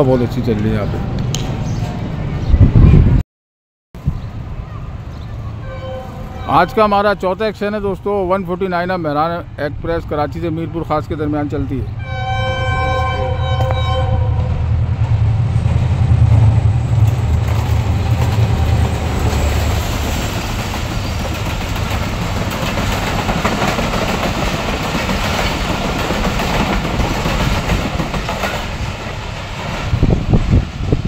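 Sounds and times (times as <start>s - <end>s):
diesel locomotive rumbling: 4.0s - 31.0s
train wheels clattering on rails: 15.0s - 30.5s.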